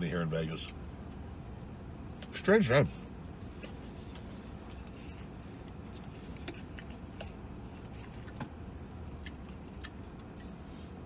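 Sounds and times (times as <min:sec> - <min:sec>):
low hum in vehicle cab: 0:00.0 - 0:11.0
person chewing food: 0:03.5 - 0:11.0
wet mouth clicks: 0:09.1 - 0:10.6.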